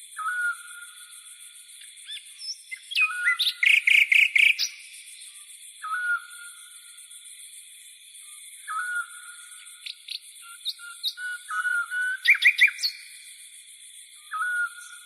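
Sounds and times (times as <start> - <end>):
rapid bird chirps: 2.0 - 6.3, 8.6 - 13.2
bird whistled phrase: 10.7 - 12.9.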